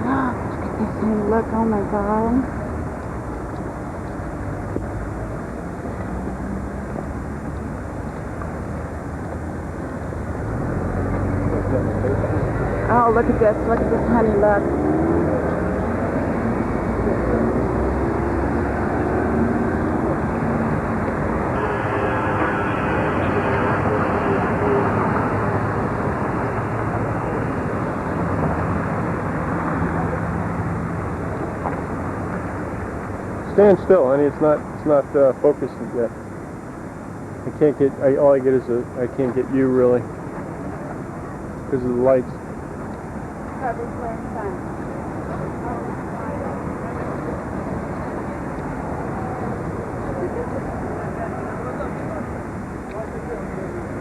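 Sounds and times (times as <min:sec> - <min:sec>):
city street traffic rumble: 0:00.0 - 0:54.0
faint engine hum: 0:00.0 - 0:54.0
murmur of voices: 0:11.2 - 0:17.8, 0:21.4 - 0:36.1, 0:43.5 - 0:54.0.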